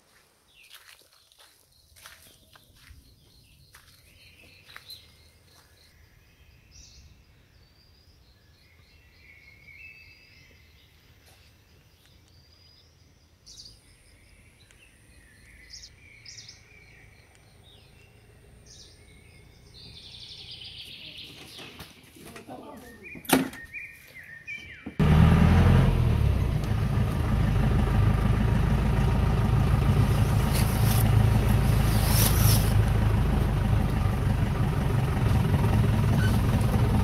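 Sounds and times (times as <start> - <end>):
small birds chirping: 0.4 - 25.0
steady low rumble: 26.0 - 37.0.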